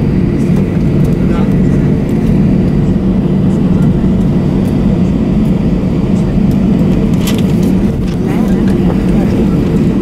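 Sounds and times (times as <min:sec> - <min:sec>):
airplane cabin engine rumble: 0:00.0 - 0:10.0
faint high engine whine: 0:00.0 - 0:10.0.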